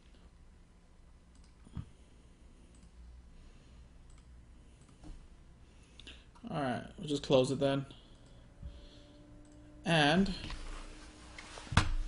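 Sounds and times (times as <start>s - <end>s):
low steady hum: 0.0s - 12.0s
faint clicks: 4.0s - 5.0s.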